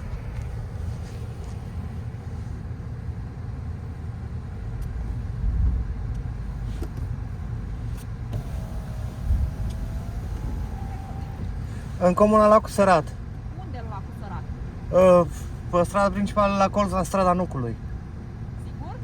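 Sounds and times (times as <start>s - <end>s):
car cabin rumble: 0.0s - 14.6s
car bumps: 7.8s - 12.4s
thin steady whine: 8.3s - 13.1s.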